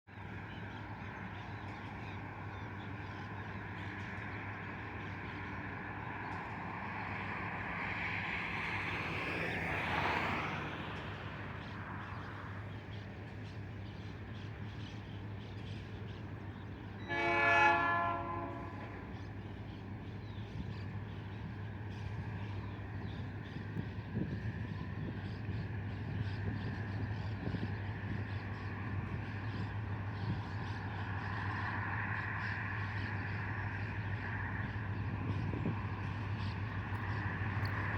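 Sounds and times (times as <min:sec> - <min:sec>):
diesel locomotive drone: 0:00.1 - 0:37.9
locomotive horn blast: 0:17.0 - 0:19.1.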